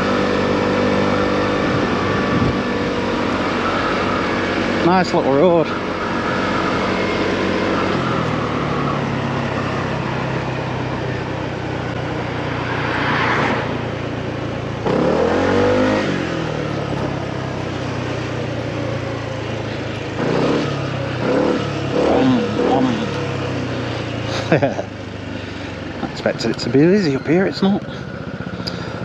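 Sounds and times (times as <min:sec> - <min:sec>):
motorcycle engine running: 0:00.0 - 0:29.0
wind rush: 0:01.6 - 0:04.5.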